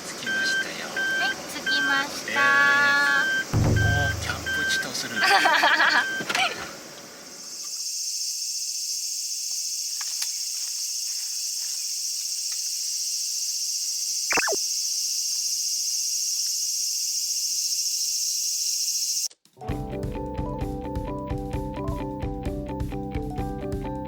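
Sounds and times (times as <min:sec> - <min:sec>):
insect chorus shrilling: 0:00.3 - 0:19.3.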